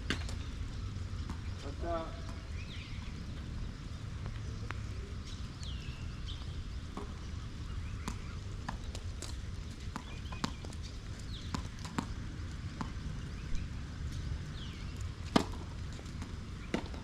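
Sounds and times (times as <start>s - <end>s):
tennis ball bouncing and struck: 1.2s - 1.6s, 6.9s - 7.2s, 8.0s - 9.0s, 9.9s - 10.8s, 11.4s - 13.0s, 15.2s - 17.0s.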